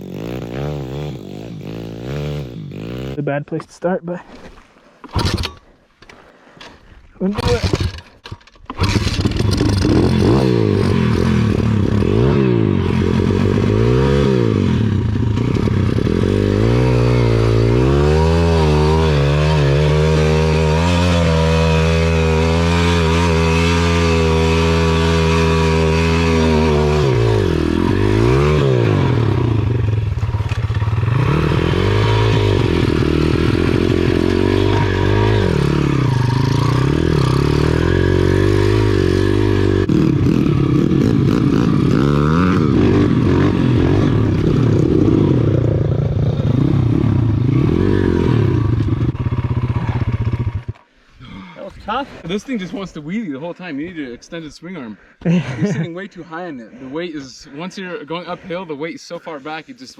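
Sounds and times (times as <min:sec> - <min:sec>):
pit bike engine revving: 0:00.0 - 0:03.2, 0:08.7 - 0:50.8.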